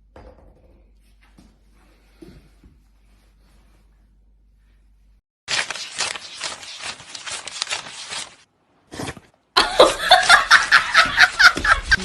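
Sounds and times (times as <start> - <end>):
person laughing hard: 9.6 - 12.0.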